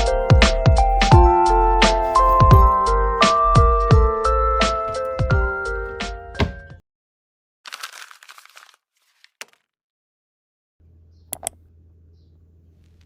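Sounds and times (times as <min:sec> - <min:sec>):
background music: 0:00.0 - 0:06.8
crinkling rustle of material: 0:07.7 - 0:09.6.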